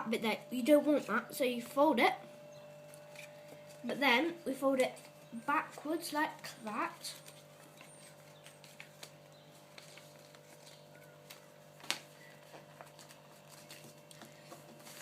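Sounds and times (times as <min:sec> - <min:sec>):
steady low hum: 0:00.0 - 0:15.0
paper rustling and crackling: 0:04.7 - 0:15.0.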